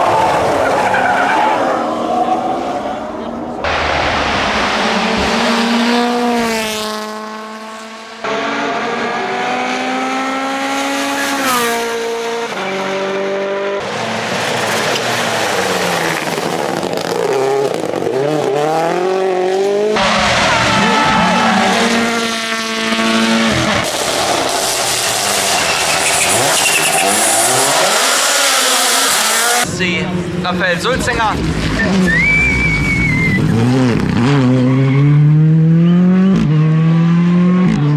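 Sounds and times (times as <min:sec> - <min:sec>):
rally car engines revving: 0:00.0 - 0:37.9.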